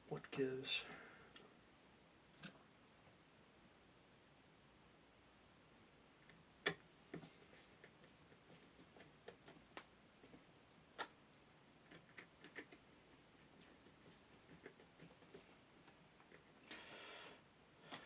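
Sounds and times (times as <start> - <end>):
small parts clicking and tapping: 11.8 - 16.5.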